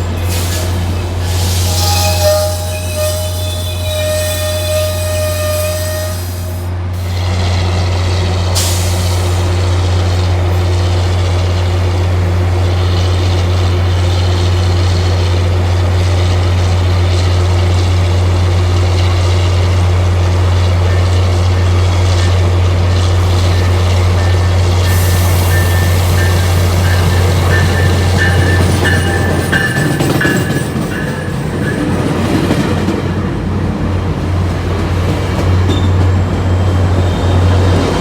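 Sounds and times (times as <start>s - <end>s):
train rumbling: 0.0s - 38.0s.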